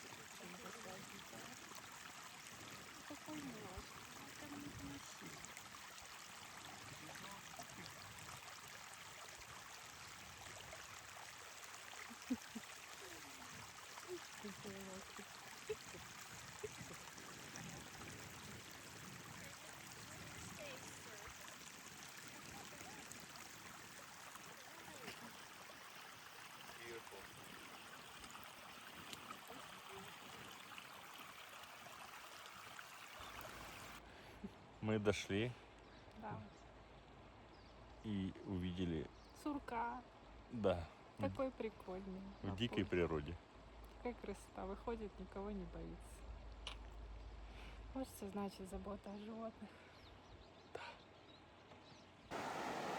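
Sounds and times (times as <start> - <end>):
running water: 0.0 - 34.0, 52.3 - 52.9
faint stream flowing: 0.0 - 52.9.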